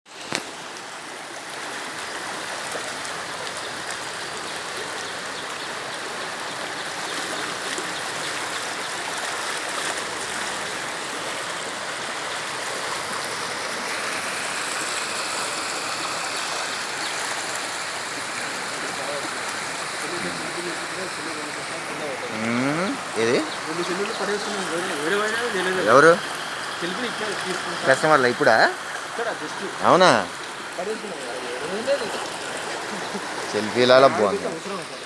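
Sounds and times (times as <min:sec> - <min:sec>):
floodwater rushing: 0:00.1 - 0:35.0.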